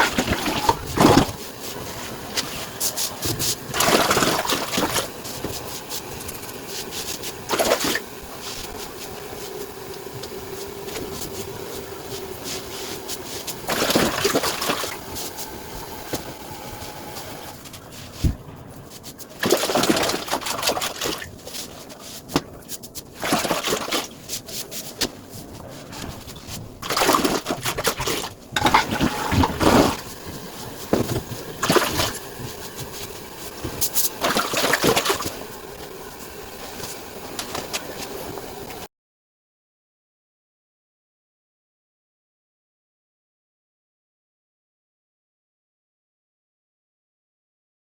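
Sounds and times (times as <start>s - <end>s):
water gushing in bursts: 0.0s - 38.9s.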